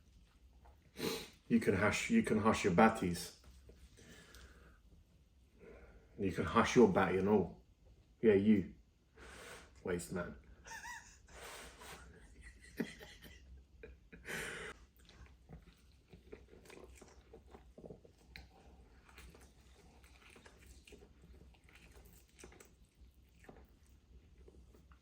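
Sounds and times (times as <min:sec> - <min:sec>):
person chewing noodles: 0:14.7 - 0:25.0.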